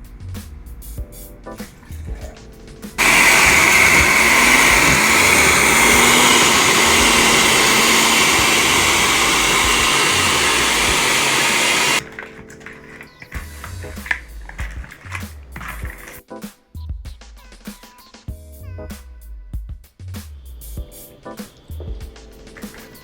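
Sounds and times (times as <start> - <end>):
blender running: 3.0 - 13.1.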